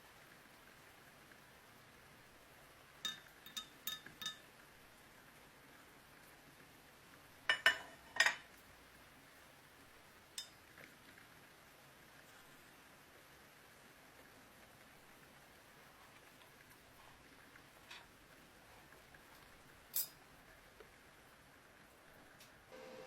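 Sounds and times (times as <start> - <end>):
metal clinking taps: 3.0 - 4.4, 7.5 - 8.4.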